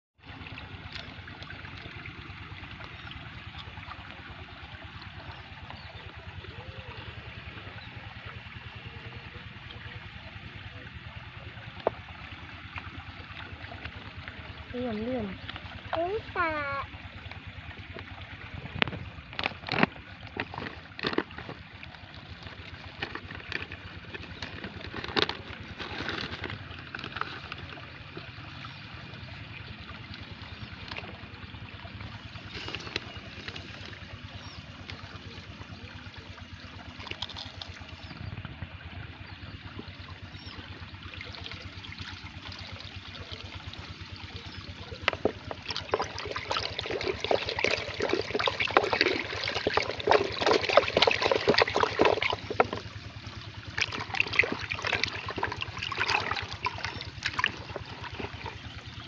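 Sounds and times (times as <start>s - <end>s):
water trickling and splashing: 0.2s - 59.0s.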